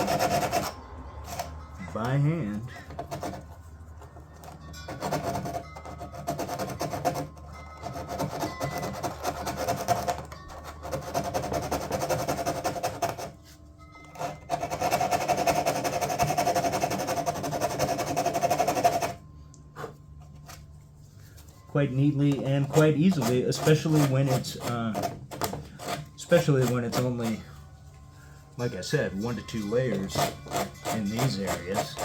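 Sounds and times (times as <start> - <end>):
sandpaper rubbing by hand: 0.0 - 0.7.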